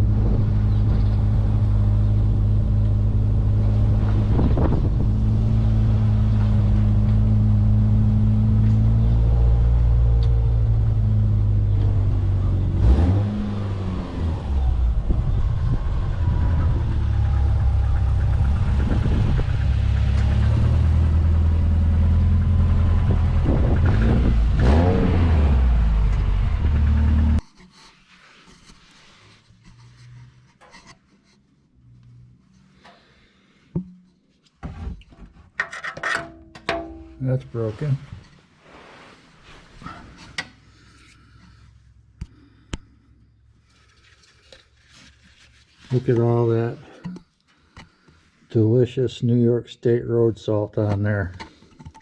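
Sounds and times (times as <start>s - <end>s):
car engine revving with exhaust leak: 0.0s - 27.4s.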